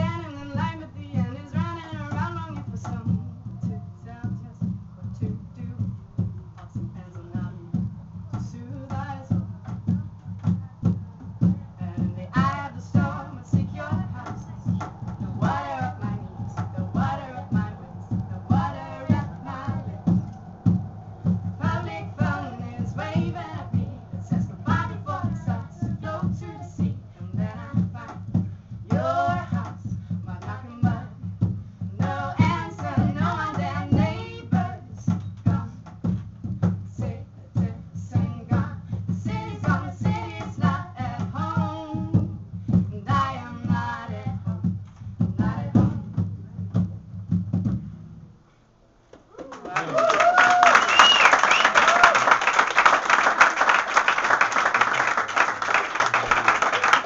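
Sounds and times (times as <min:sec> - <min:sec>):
driving low beat: 0:00.0 - 0:48.4
person singing: 0:11.8 - 0:28.1.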